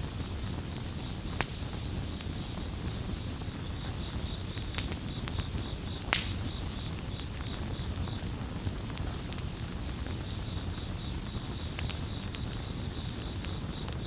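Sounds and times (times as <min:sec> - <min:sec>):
campfire crackling: 0:00.0 - 0:14.0
cricket chirping: 0:03.1 - 0:08.3, 0:09.3 - 0:14.0.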